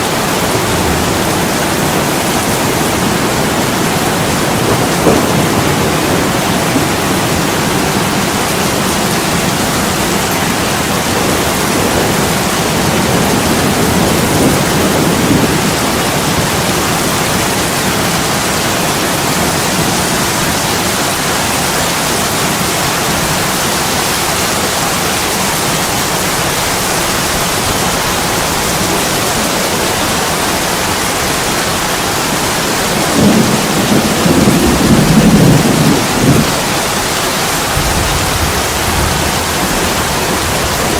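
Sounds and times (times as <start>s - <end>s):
heavy rain on a window: 0.0s - 40.9s
low rumble of thunder: 0.1s - 20.9s, 32.4s - 40.9s.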